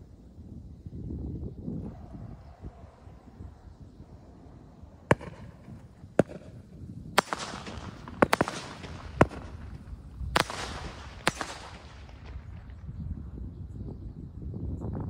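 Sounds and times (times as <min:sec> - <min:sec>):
crackling hiss: 0:00.0 - 0:13.0
fireworks bangs: 0:01.8 - 0:12.9.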